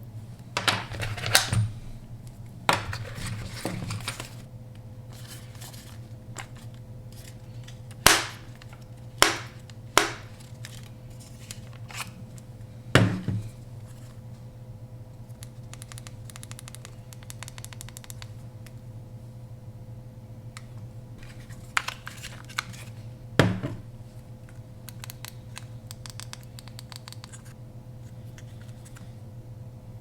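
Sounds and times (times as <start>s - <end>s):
steady low hum: 0.0s - 30.0s
small ticks: 15.4s - 18.3s.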